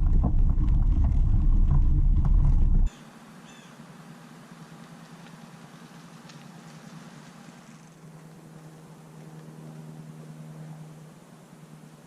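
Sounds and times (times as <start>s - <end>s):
bike rattling: 0.0s - 2.9s
wind buffeting microphone: 0.0s - 2.9s.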